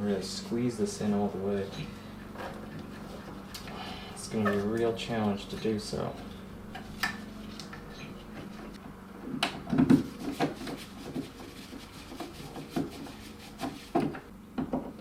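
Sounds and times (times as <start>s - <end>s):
scrapes and rubbing: 1.6s - 3.6s, 9.9s - 14.1s.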